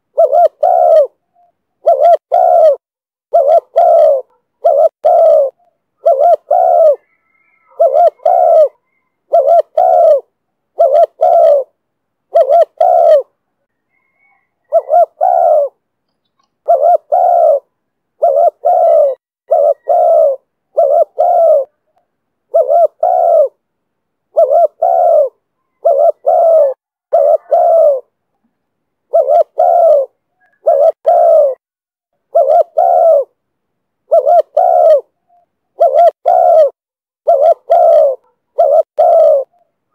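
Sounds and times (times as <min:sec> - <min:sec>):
dove cooing: 0:00.0 - 0:23.6, 0:24.3 - 0:28.2, 0:29.1 - 0:31.6, 0:32.2 - 0:33.4, 0:34.0 - 0:39.9.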